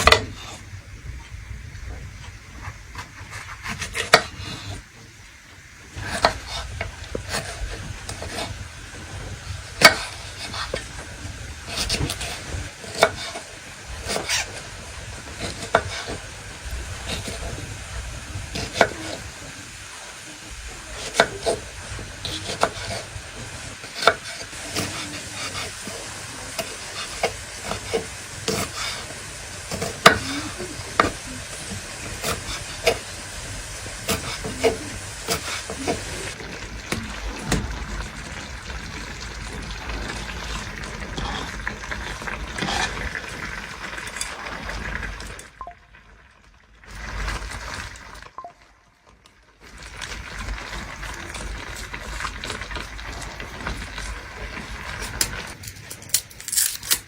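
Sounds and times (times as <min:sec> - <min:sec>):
food sizzling in a pan: 0:00.0 - 0:46.1, 0:49.6 - 0:57.0
metal spoon scraping a pan: 0:11.6 - 0:17.8, 0:21.0 - 0:36.4, 0:41.1 - 0:43.1.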